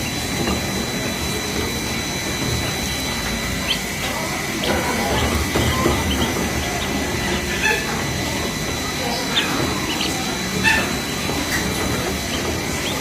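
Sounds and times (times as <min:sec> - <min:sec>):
ducklings peeping: 0:02.8 - 0:08.3, 0:09.0 - 0:13.0.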